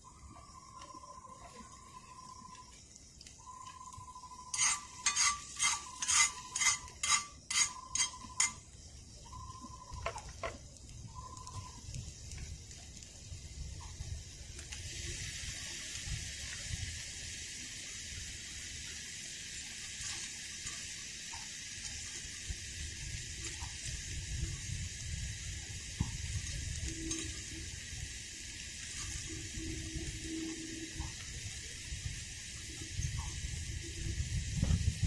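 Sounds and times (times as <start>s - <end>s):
sizzling hiss: 0.0s - 35.0s.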